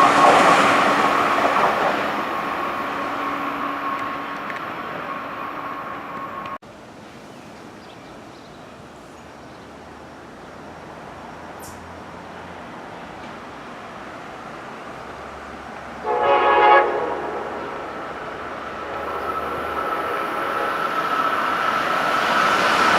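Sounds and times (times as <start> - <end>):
station ambience: 0.0 - 6.6, 12.8 - 22.9
approaching train rumble: 0.0 - 22.9
passing train rumble and whine: 0.0 - 22.9.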